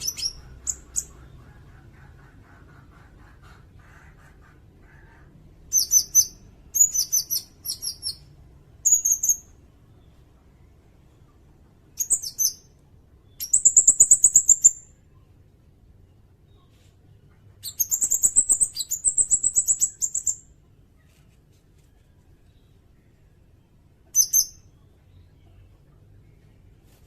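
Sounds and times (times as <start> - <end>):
bird chirping and trilling: 0.0 - 2.4, 4.8 - 10.2, 11.9 - 15.2, 17.6 - 20.5, 24.0 - 25.6.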